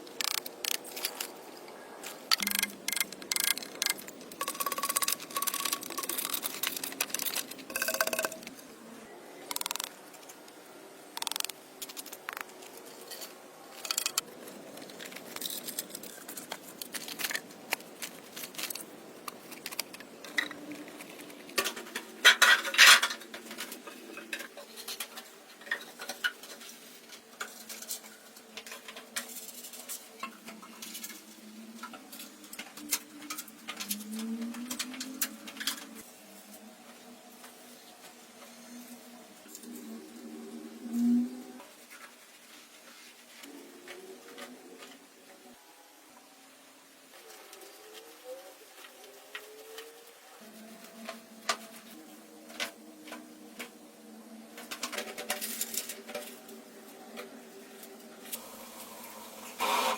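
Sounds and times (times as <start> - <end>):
hard objects clinking and knocking: 2.3 - 8.6.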